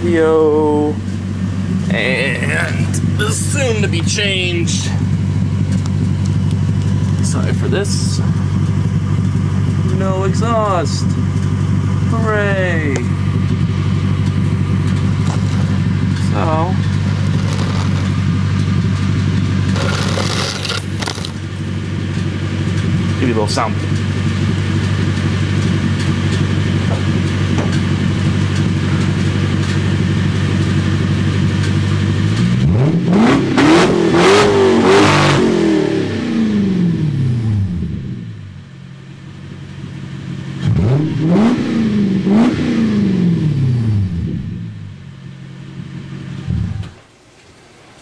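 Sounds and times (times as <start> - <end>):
car engine idling loudly: 0.0 - 32.6
car engine revving: 0.0 - 38.4, 40.2 - 47.0.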